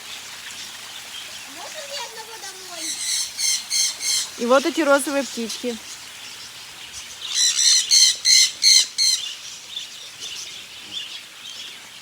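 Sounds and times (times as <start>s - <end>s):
bird squawking: 1.9s - 5.8s, 7.3s - 9.4s
faint bird chirps: 5.5s - 12.0s.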